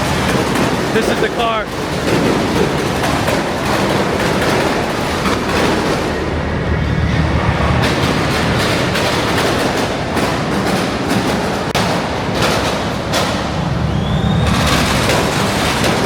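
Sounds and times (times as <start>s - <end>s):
car engines and exhausts running: 0.0s - 16.0s
sharp exhaust cracks: 0.0s - 16.0s.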